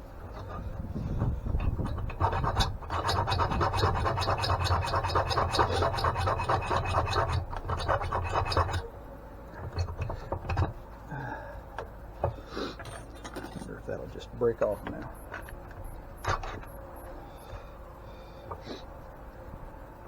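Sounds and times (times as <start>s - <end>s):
hand tool scraping on bolt: 0.2s - 8.8s.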